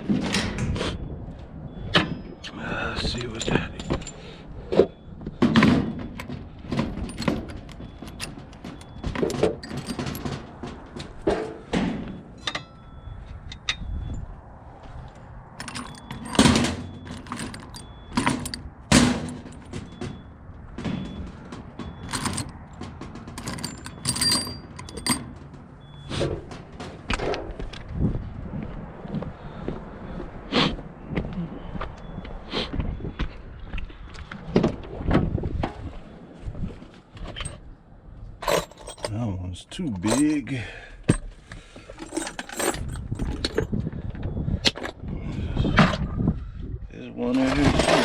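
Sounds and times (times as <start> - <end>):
scrap metal clanking: 3.2 - 12.9, 15.6 - 27.6, 38.4 - 39.2, 39.9 - 43.6, 47.4 - 48.0.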